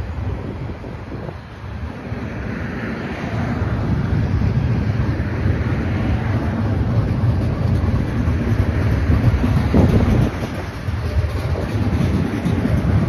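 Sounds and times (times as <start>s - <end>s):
freight train wheels rumbling on rails: 0.0s - 13.0s.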